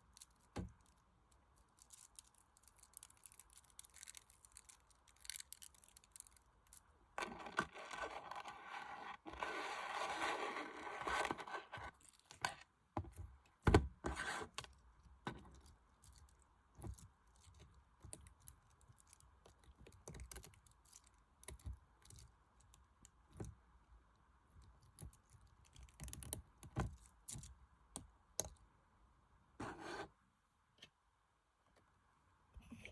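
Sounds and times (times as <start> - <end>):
scratchy noise: 7.6 - 11.9.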